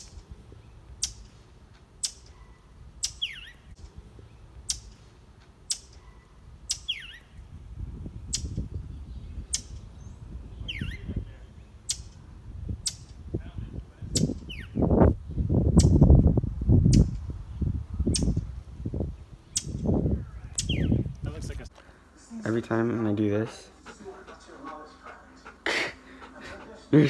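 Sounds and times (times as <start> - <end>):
bird chirping: 0.0 - 1.4, 2.0 - 5.1, 5.7 - 7.5, 8.2 - 12.2, 14.1 - 16.0, 16.9 - 18.4, 19.1 - 21.2.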